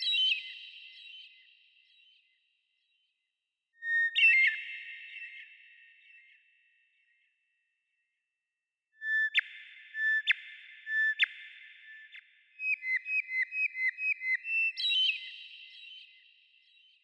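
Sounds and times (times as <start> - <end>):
songbird singing whistled notes: 0.0 - 2.4, 3.8 - 6.5, 9.0 - 17.0.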